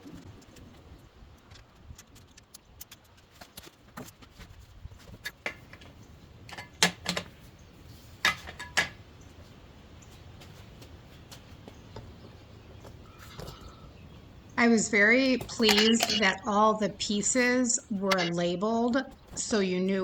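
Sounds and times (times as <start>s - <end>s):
metal hardware clicking and clinking: 15.4s - 16.4s.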